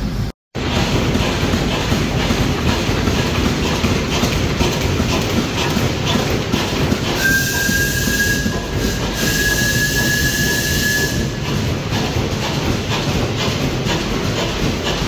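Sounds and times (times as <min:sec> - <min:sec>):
steam engine rumble: 0:00.0 - 0:15.0
steam whistle: 0:07.2 - 0:11.4.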